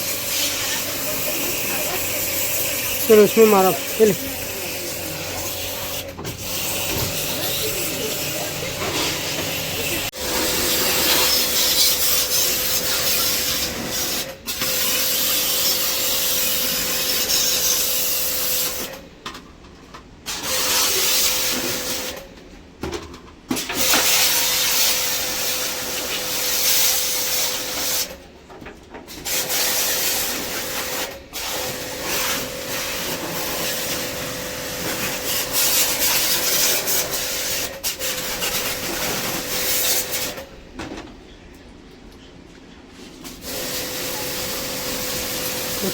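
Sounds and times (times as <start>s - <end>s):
pump motor whine: 29.5s - 37.5s, 43.4s - 45.9s.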